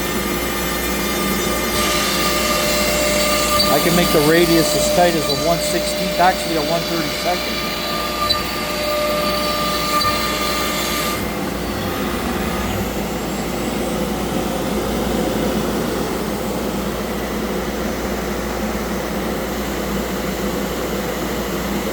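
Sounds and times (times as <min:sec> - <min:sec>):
high whine: 0:00.0 - 0:17.1
cnc router rushing noise: 0:00.0 - 0:21.9.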